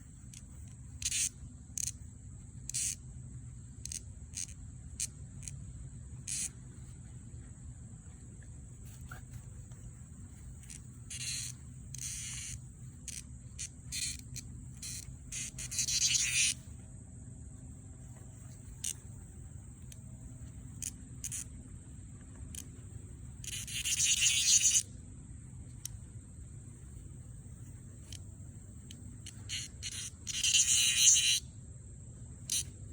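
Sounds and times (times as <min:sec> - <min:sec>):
cicadas shrilling: 0:00.0 - 0:32.9
high insect whine: 0:00.0 - 0:32.9
short hissing buzzes: 0:00.3 - 0:02.0, 0:06.2 - 0:06.5, 0:10.6 - 0:16.6, 0:23.4 - 0:24.9, 0:29.2 - 0:31.4, 0:32.5 - 0:32.8.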